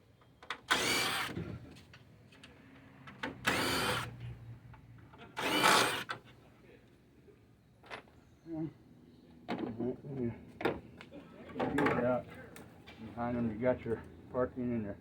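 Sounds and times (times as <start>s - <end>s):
power drill motor: 0.7s - 1.4s, 3.4s - 4.1s, 5.4s - 6.1s.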